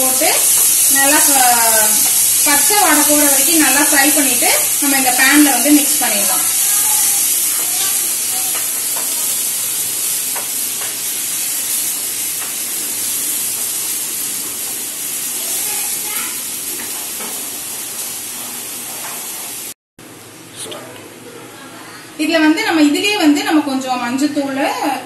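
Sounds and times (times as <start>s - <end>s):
paste sizzling in a pan: 0.0s - 19.8s
spatula scraping and tapping: 7.8s - 9.4s, 10.3s - 11.1s.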